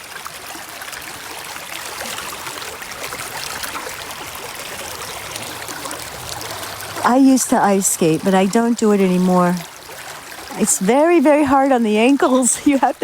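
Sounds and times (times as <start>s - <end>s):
brook water flowing and trickling: 0.0s - 13.0s.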